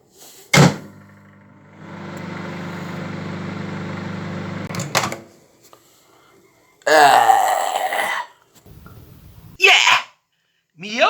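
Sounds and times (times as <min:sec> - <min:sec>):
microwave clicking: 0:00.6 - 0:05.3
microwave humming: 0:00.6 - 0:05.3.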